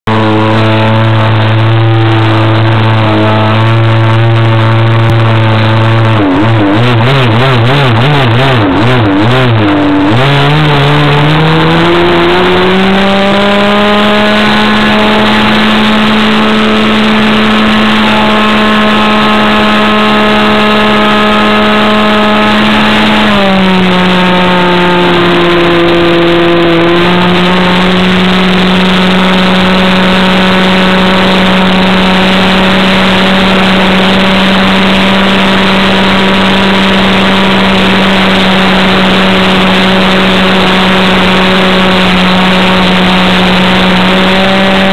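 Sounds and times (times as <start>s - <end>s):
model airplane engine running: 0.1s - 44.9s.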